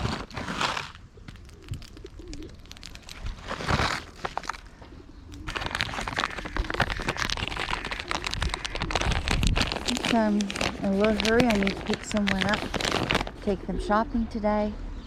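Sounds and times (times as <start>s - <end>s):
rustling noise: 0.0s - 13.5s
pigeons cooing: 1.1s - 12.6s.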